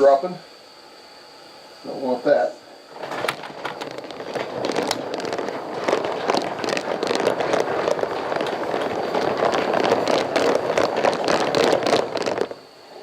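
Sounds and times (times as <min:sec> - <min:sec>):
fire crackling: 0:02.9 - 0:12.7.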